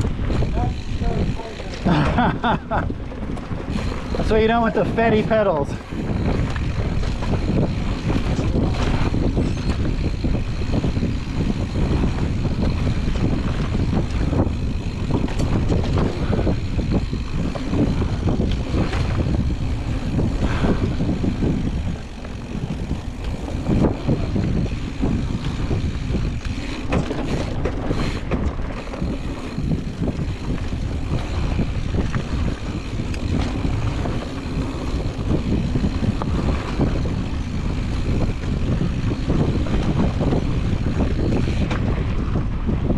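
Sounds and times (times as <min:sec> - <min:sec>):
bike knocks and rattles: 0:00.0 - 0:42.9
bike tyre rumble: 0:00.0 - 0:42.9
wind on microphone: 0:00.0 - 0:42.9.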